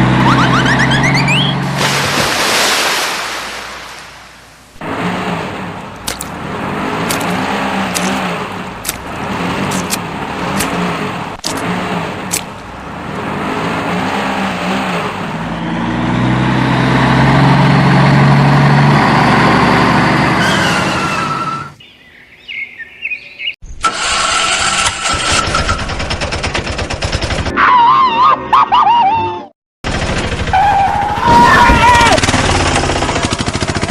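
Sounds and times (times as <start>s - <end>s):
vehicle engine running: 4.6s - 21.1s, 29.8s - 33.9s.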